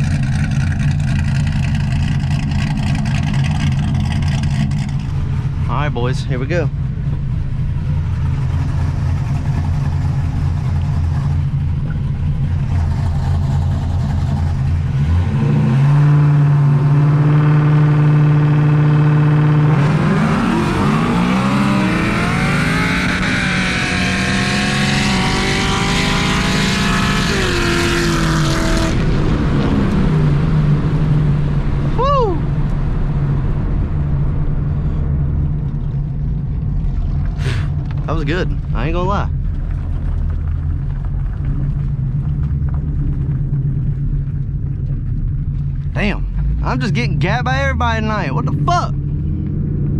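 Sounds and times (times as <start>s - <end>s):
car engine revving and accelerating: 0.0s - 6.6s, 7.8s - 31.9s.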